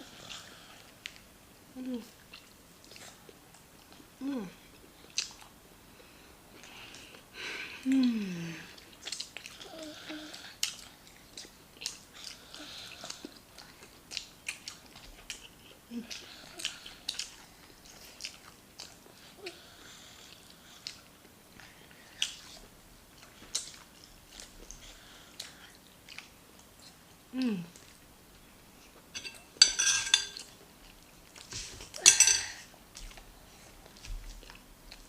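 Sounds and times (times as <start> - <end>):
close chewing with mouth clicks: 2.1 - 5.6, 7.9 - 29.1, 32.6 - 35.0
person humming mm: 4.2 - 4.6, 7.8 - 8.8, 27.3 - 27.8
lip smacks: 22.1 - 22.6, 23.2 - 24.8.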